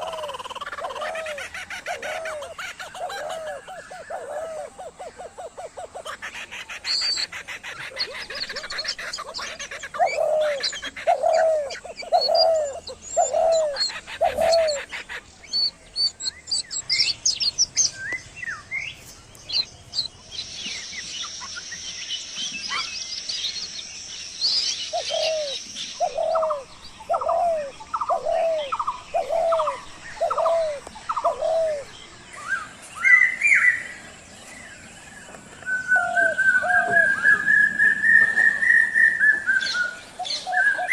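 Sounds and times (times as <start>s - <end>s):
bird low hooting call: 0.0s - 15.2s, 24.8s - 34.0s, 35.6s - 40.9s
small birds chirping and trilling: 0.0s - 40.9s.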